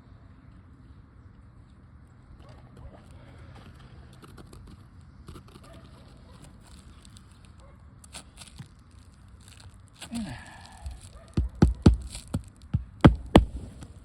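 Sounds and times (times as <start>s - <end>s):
hammer striking nail: 11.4s - 13.6s.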